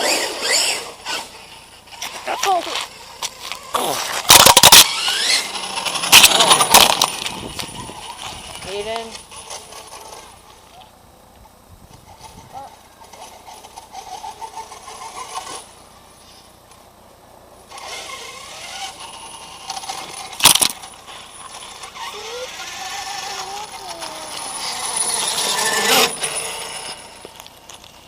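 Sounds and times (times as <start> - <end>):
electric motor whine: 0.0 - 10.7, 17.7 - 28.0
tire and ground hiss: 0.0 - 28.0
sharp crack: 2.8 - 7.3.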